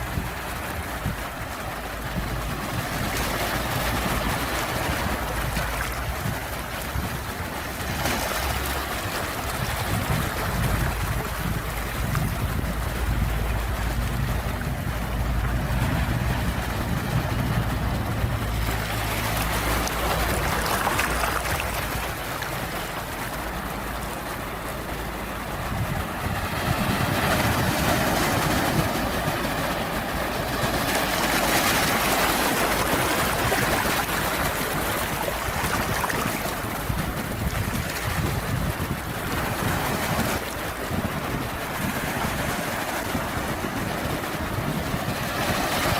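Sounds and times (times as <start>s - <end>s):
ocean waves breaking: 0.0s - 45.9s
low rumble: 9.6s - 32.4s.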